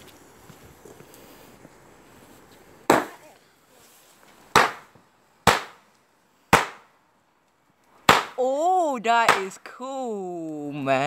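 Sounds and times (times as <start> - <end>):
fireworks bangs with echo: 4.5 - 5.8.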